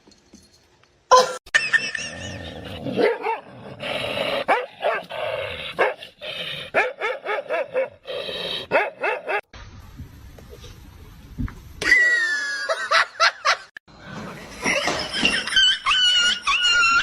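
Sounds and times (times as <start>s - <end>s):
dog barking and yipping: 3.0s - 3.5s, 4.5s - 5.1s, 6.8s - 8.0s, 8.7s - 9.4s.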